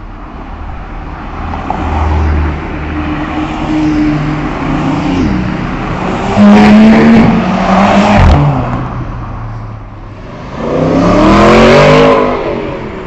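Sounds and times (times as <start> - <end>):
car engines passing: 0.0 - 13.0.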